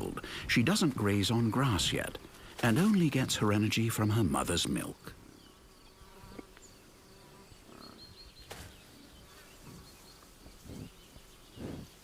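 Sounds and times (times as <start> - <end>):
insects buzzing: 0.2 - 12.0.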